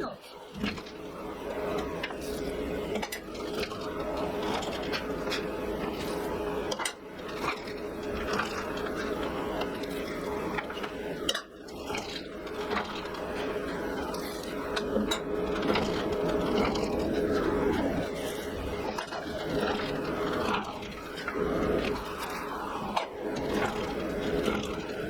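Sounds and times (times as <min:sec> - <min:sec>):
workshop equipment humming: 0:00.0 - 0:25.0.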